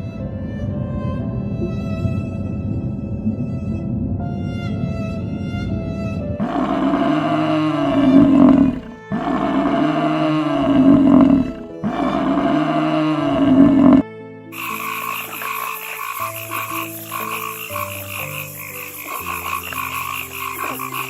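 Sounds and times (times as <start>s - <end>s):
music track: 0.0s - 21.0s
large animal roaring: 6.4s - 14.0s, 14.6s - 21.0s.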